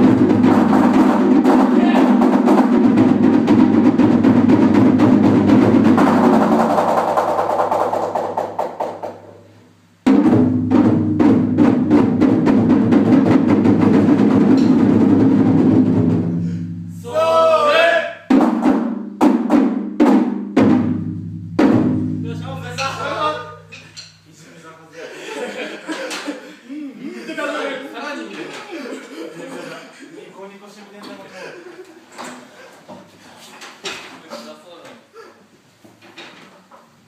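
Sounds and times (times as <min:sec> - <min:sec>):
drums rolling: 0:00.0 - 0:17.5, 0:18.2 - 0:24.3
person calling out: 0:17.0 - 0:18.2.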